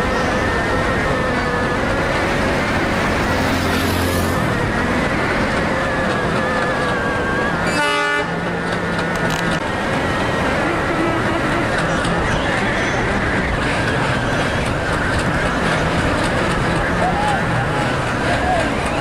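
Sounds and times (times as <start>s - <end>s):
train running: 0.0s - 19.0s
train horn blast: 7.6s - 8.5s.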